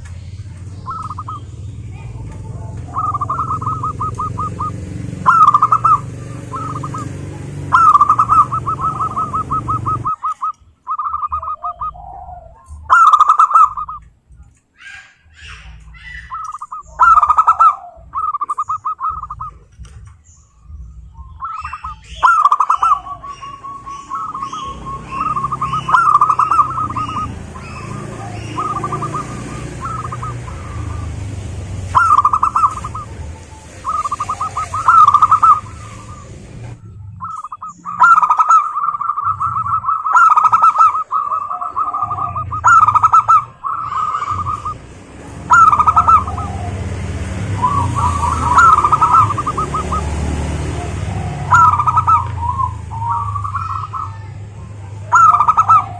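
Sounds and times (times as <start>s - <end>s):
doves cooing: 0.0s - 55.9s.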